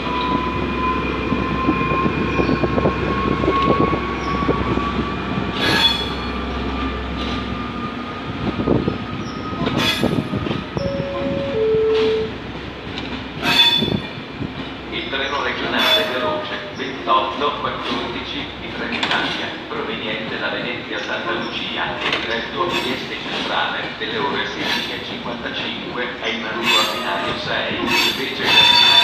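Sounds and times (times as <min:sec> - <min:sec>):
train wheels rumbling and clanking: 0:00.0 - 0:29.0
two short tones: 0:10.8 - 0:12.3.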